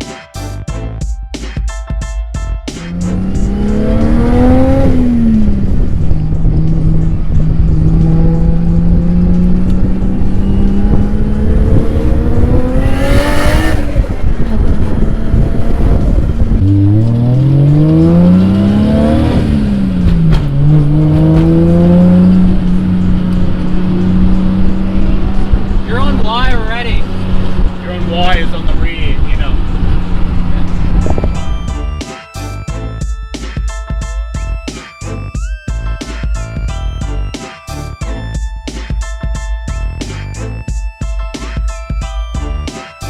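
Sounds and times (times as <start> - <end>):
car engine revving: 2.8 - 32.9.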